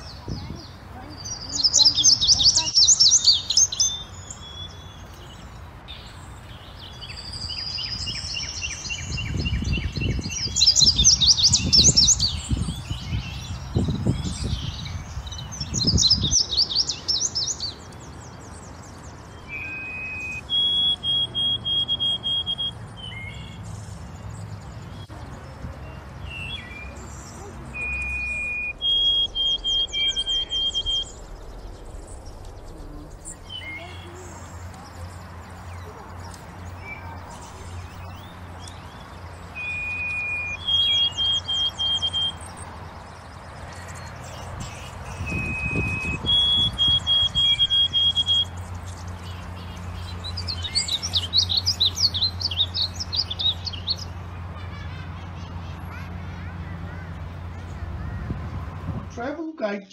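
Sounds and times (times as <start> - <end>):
birds calling: 0.0 - 59.8
songbird whistling: 19.4 - 23.6, 26.3 - 32.6, 35.7 - 42.6, 43.7 - 54.1
steady low hum: 26.8 - 40.8
low steady rumble: 26.9 - 39.5.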